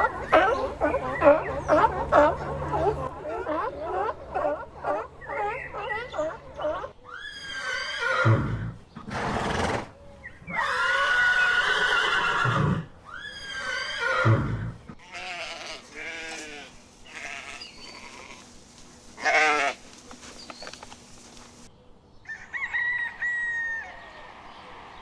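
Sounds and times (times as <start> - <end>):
horse whinnying and snorting: 7.1 - 16.4.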